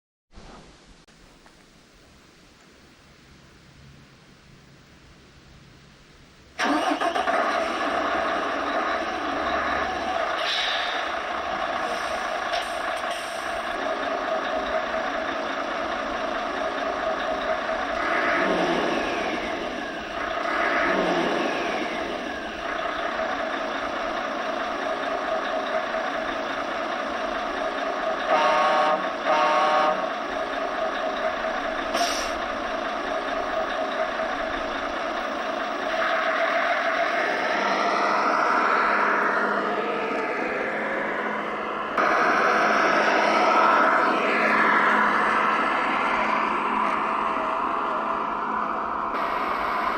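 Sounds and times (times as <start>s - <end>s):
simulated truck engine: 0.4s - 49.9s
short pitched horn blasts: 28.3s - 30.0s.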